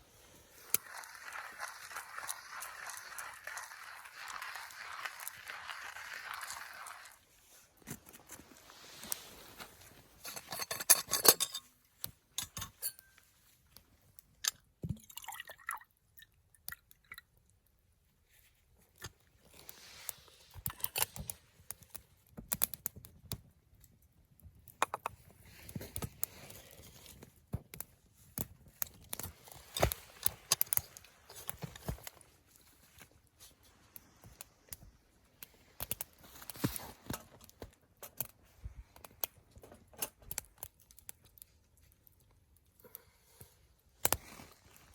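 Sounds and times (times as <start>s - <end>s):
camp cookware clinking: 10.2s - 11.7s, 12.3s - 13.2s.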